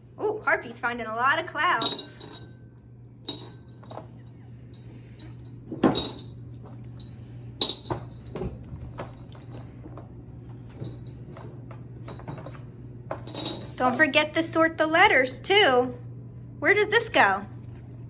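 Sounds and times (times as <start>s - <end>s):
glass gems clinking into a bowl: 1.8s - 2.7s, 3.3s - 8.4s, 10.7s - 13.8s.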